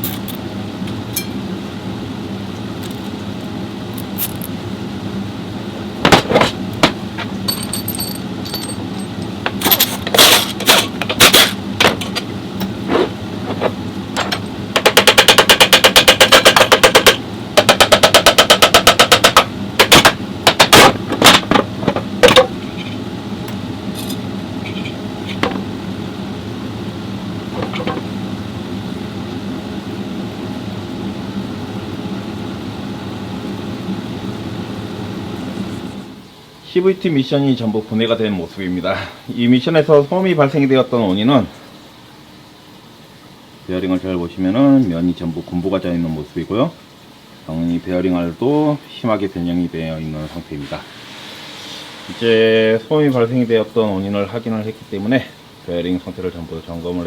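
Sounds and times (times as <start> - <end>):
steady low hum: 0.0 - 51.2
metal tools clanking: 6.1 - 12.8, 23.9 - 25.6
impact wrench hammering: 14.2 - 21.6.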